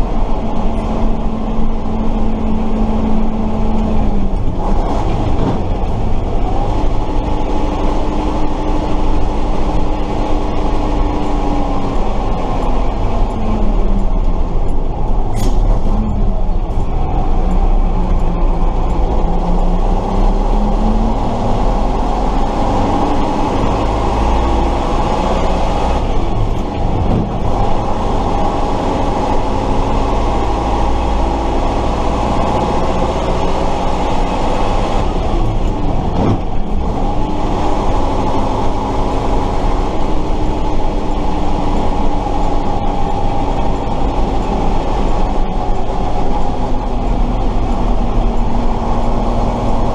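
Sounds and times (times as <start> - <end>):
truck engine running: 0.0 - 49.9.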